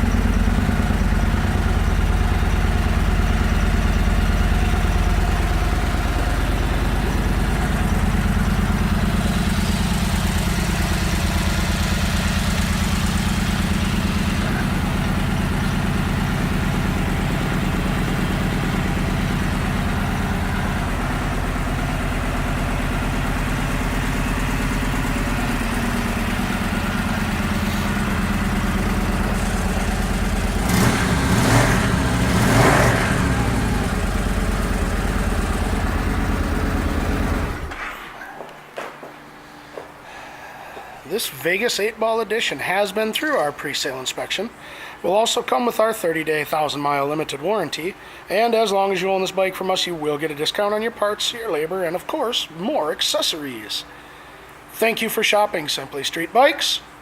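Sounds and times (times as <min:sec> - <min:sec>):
motorcycle engine idling and revving: 0:00.0 - 0:37.8.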